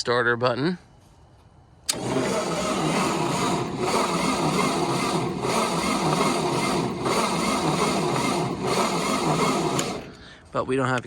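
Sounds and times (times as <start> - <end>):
tractor engine cranking: 1.9 - 10.4.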